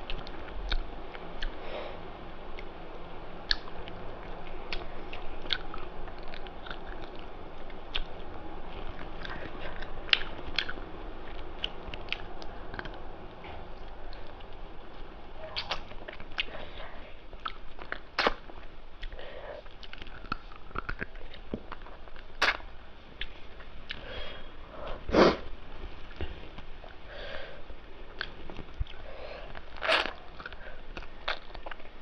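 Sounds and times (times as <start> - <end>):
person chewing: 0.1 - 1.6, 3.5 - 22.6, 28.1 - 32.0
person sniffing: 24.0 - 25.5.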